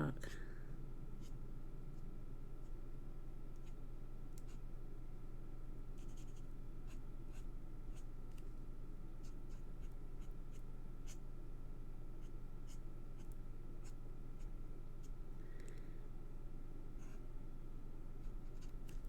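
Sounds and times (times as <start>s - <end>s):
steady low hum: 0.0s - 19.0s
marker pen scratching on card: 6.0s - 8.1s, 18.2s - 19.0s.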